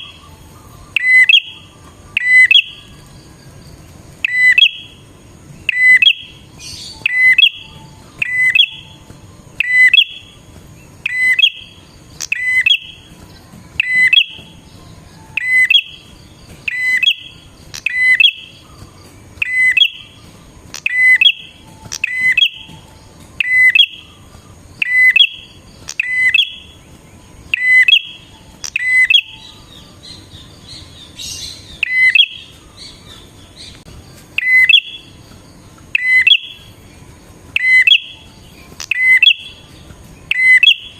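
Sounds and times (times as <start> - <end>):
warbler sharp call: 0.0 - 3.1, 4.2 - 5.0, 5.6 - 26.8, 27.4 - 33.8, 34.4 - 35.2, 35.9 - 36.8, 37.5 - 40.9
soft bird twittering: 0.0 - 40.9.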